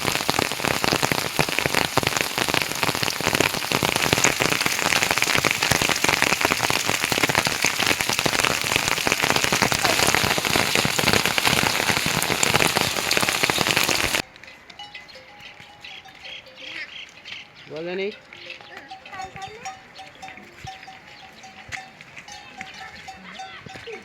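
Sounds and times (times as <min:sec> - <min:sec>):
heavy rain pouring: 0:00.0 - 0:14.2.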